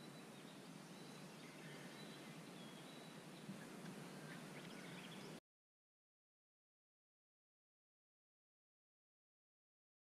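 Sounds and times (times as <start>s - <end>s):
distant high bird calls: 0.0s - 5.4s
lake ambience: 0.0s - 5.4s.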